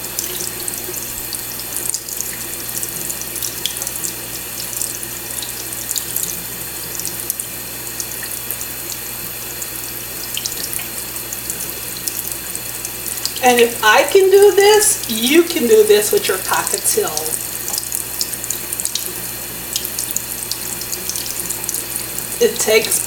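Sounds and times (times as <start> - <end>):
tap water splashing: 17.2 - 22.4.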